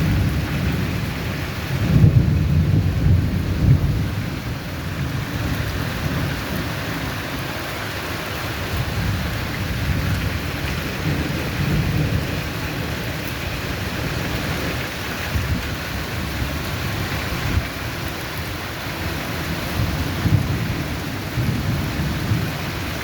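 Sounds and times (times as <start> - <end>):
rolling thunder: 0.0 - 7.3, 8.6 - 18.0, 19.0 - 23.0
heavy rain: 0.0 - 23.0.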